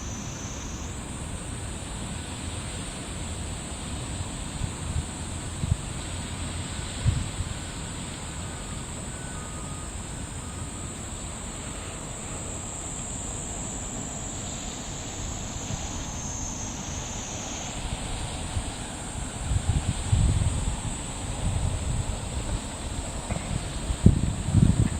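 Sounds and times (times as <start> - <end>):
high insect drone: 0.0 - 24.9
wind on microphone: 4.5 - 6.0, 6.7 - 7.7, 15.0 - 24.9.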